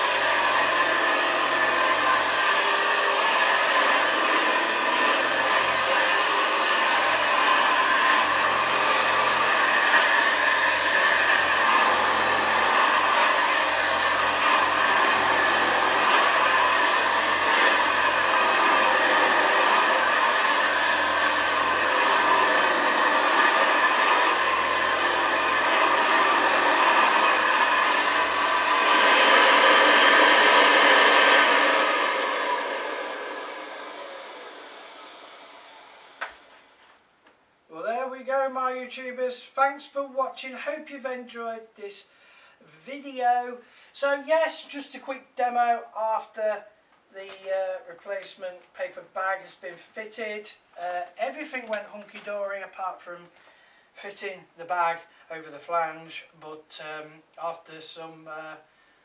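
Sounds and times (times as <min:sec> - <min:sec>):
vacuum cleaner running: 0:00.0 - 0:37.0.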